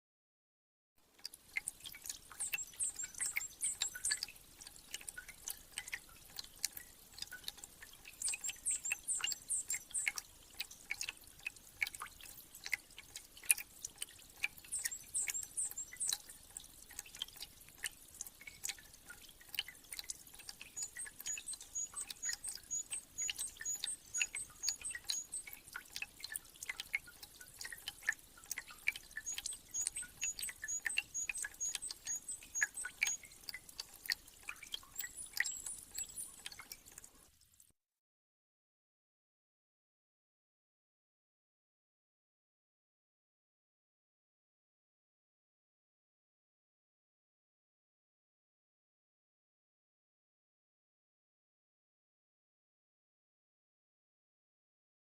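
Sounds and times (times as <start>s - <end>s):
meltwater dripping: 1.2s - 37.7s
small birds chirping: 1.8s - 11.1s, 14.4s - 17.9s, 19.5s - 37.0s.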